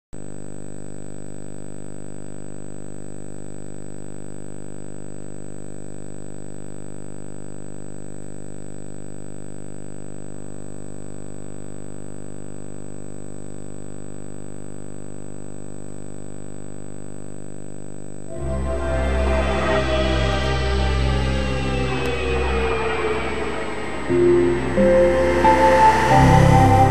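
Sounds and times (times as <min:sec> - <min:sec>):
faint high whine: 0:18.2 - 0:26.9
music: 0:18.3 - 0:26.9.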